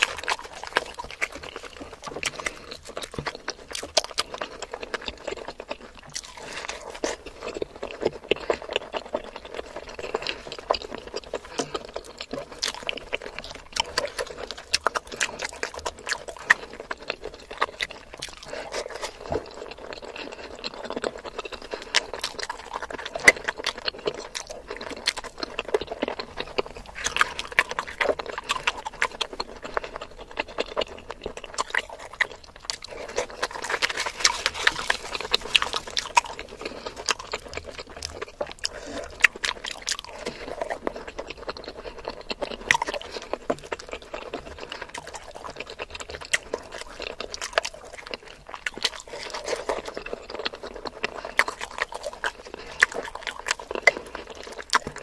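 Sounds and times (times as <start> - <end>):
fried bread tearing: 0.0 - 4.8, 31.6 - 40.8
chewing and mouth smacking: 0.0 - 55.0.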